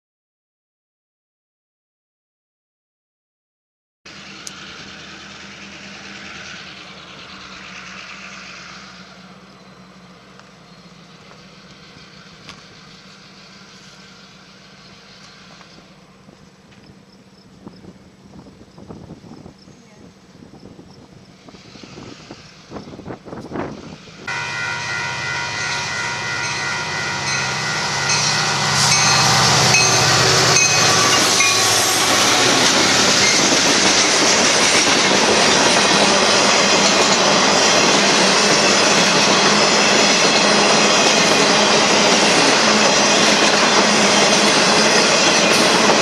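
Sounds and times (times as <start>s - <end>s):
locomotive engine drone: 4.1s - 46.0s
train wheels clattering on rail: 4.2s - 19.7s, 28.1s - 46.0s.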